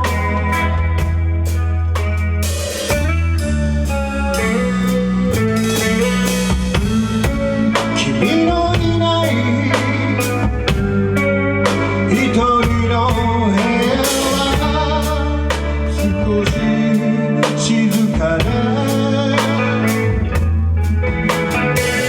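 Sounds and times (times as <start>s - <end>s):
bass notes: 0.0s - 22.0s
electric guitar: 0.0s - 22.0s.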